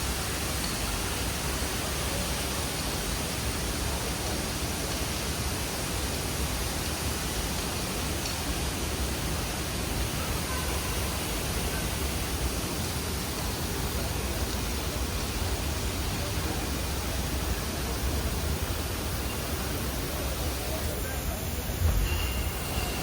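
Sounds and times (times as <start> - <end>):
airliner cabin roar: 21.4 - 23.0.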